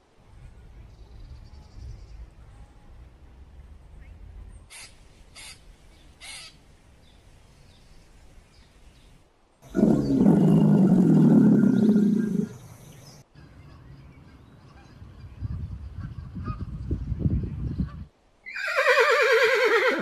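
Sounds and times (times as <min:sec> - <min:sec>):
short harsh animal calls: 0:04.7 - 0:05.6, 0:06.2 - 0:06.6.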